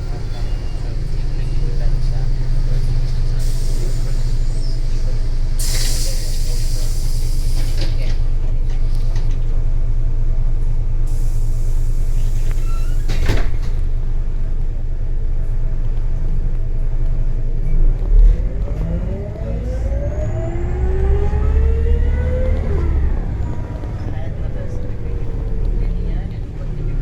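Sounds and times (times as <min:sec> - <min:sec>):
bus engine droning: 0:00.0 - 0:27.0
air hiss bursts: 0:05.6 - 0:07.4.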